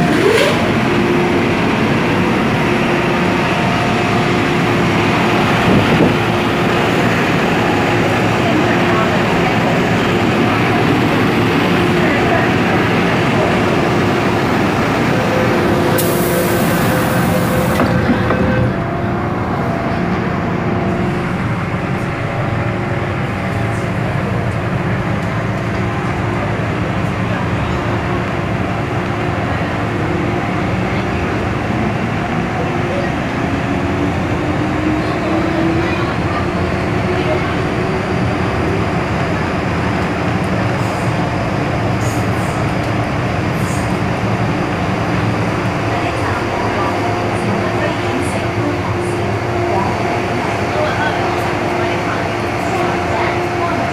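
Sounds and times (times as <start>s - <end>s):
train motor noise: 0.0s - 32.2s
train wheels rumbling on rail: 0.0s - 53.9s.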